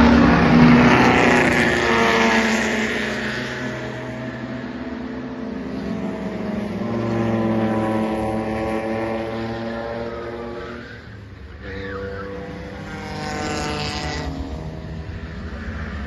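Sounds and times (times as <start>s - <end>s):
racing car engine under load: 0.0s - 16.0s.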